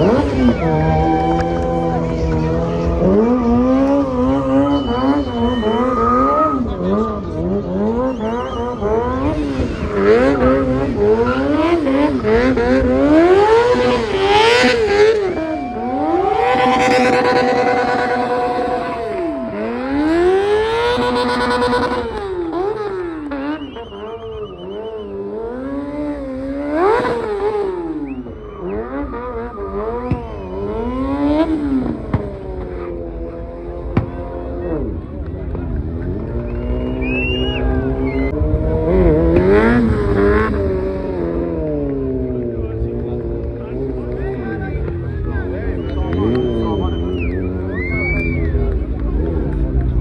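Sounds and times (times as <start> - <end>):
car engines revving: 0.0 - 50.0
brief high tone: 15.6 - 20.2.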